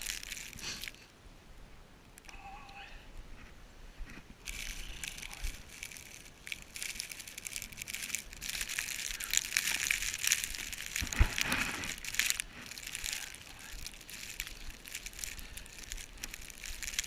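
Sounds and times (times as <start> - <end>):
footsteps crunching through snow: 3.5 - 17.0.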